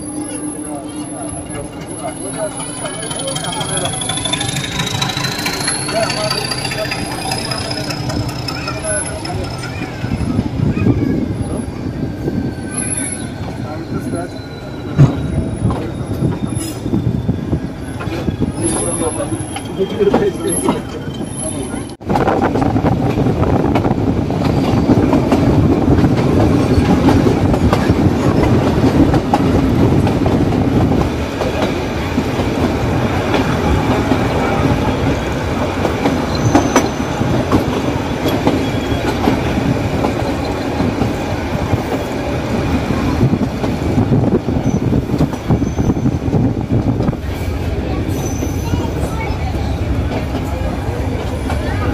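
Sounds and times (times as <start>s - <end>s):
train wheels clattering over rail joints: 2.3s - 10.7s.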